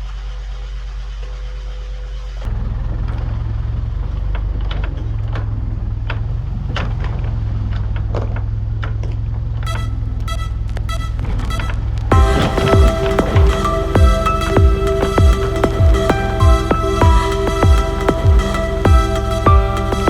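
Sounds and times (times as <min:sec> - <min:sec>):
short squeaks: 0:09.7 - 0:12.6.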